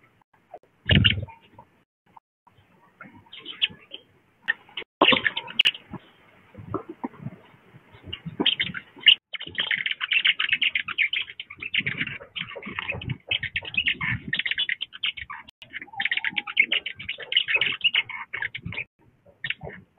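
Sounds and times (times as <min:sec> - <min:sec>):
birds chip notes: 0:08.0 - 0:19.8.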